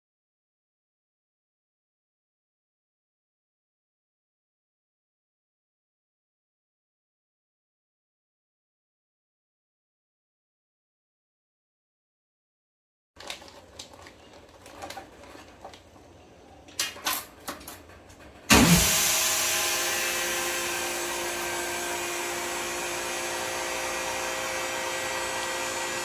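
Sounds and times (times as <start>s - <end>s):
handling clicks and rustles: 13.2s - 18.9s
vacuum packing pump humming: 18.4s - 26.0s
vacuum pump starting thud: 18.4s - 26.0s.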